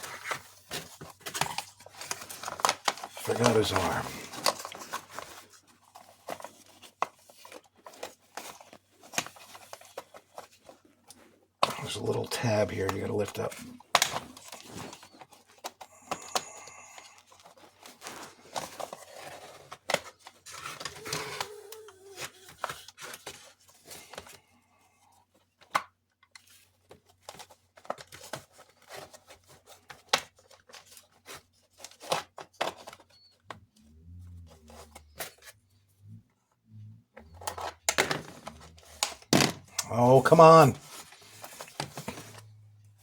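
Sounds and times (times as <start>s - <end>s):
plastic scraping on plastic: 0.0s - 24.4s, 26.4s - 36.3s, 36.9s - 43.0s
plastic parts clicking: 37.2s - 39.9s.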